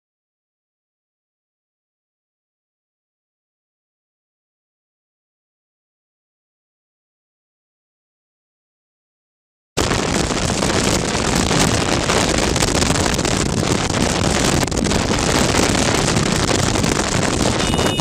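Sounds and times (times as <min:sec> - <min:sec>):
wind and road noise: 0:09.8 - 0:18.0
wind buffeting microphone: 0:09.8 - 0:18.0.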